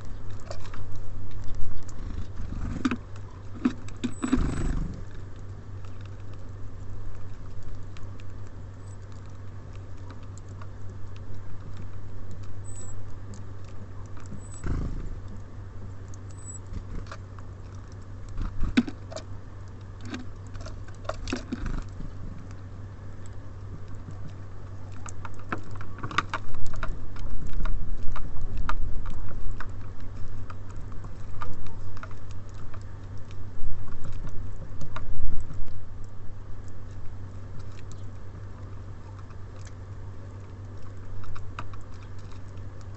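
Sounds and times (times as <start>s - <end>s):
birds pecking at feeder: 0.0s - 42.9s
steady low hum: 0.0s - 42.9s
high bird calls: 12.6s - 13.0s, 14.3s - 14.7s, 16.3s - 16.8s.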